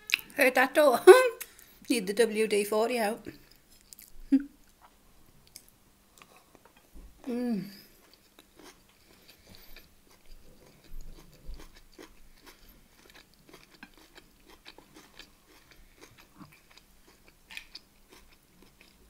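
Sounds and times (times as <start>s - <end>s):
person chewing food: 3.3s - 6.9s, 7.8s - 19.0s.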